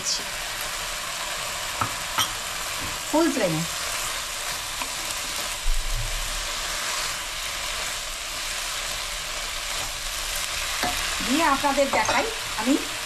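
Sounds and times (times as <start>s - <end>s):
food sizzling in a wok: 0.0s - 13.0s
spatula stirring: 4.0s - 5.6s.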